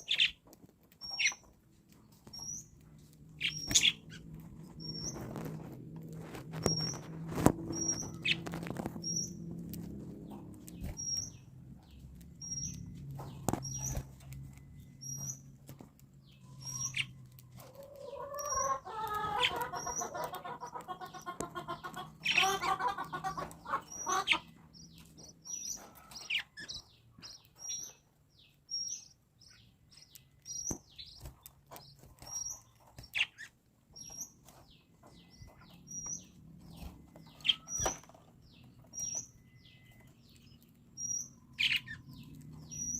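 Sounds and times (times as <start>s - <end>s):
lovebirds chirping: 0.0s - 42.9s
warbling bird chatter: 2.3s - 5.6s, 6.6s - 15.6s, 16.2s - 42.9s.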